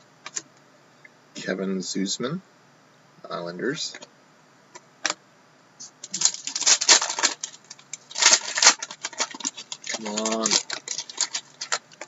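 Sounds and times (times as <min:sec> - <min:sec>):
card pack crinkling and clicking: 0:06.1 - 0:12.0.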